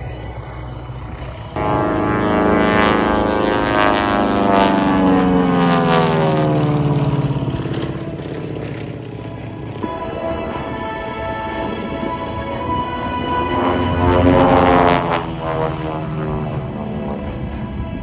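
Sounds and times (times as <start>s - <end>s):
propeller plane flying past: 0.0s - 18.0s.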